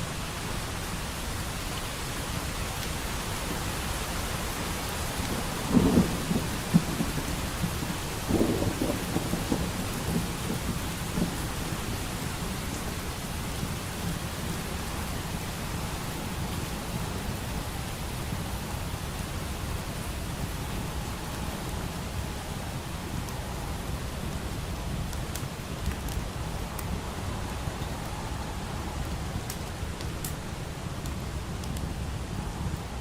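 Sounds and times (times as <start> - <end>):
steady rain: 0.0 - 33.0
distant thunder rumbling: 5.3 - 14.6.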